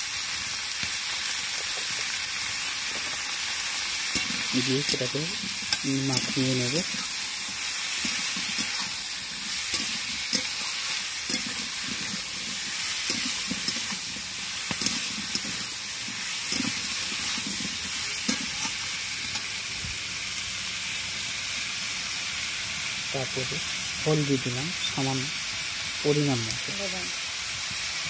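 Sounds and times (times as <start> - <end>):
vegetables sizzling in oil: 0.0 - 28.0
metal spatula scraping a pan: 4.0 - 19.6.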